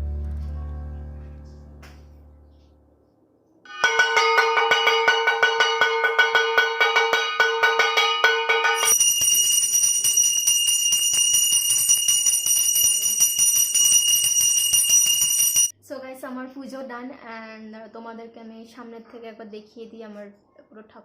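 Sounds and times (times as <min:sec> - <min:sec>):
hand bell ringing rapidly: 0:03.8 - 0:15.7.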